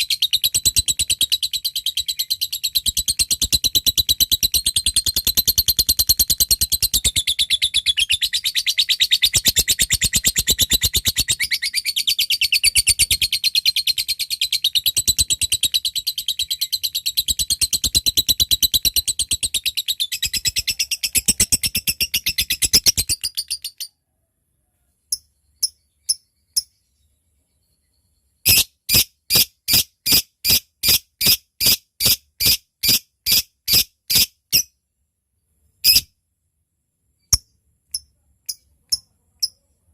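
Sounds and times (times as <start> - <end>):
lovebird high-pitched chatter: 0.0 - 24.0, 25.1 - 26.9, 28.4 - 34.7, 35.8 - 36.1, 37.3 - 39.7.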